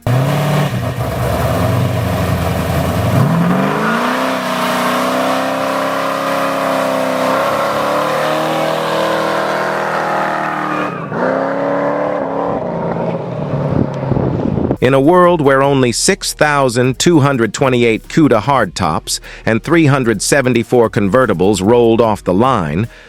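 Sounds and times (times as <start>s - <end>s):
car engine idling and revving: 0.0s - 23.0s.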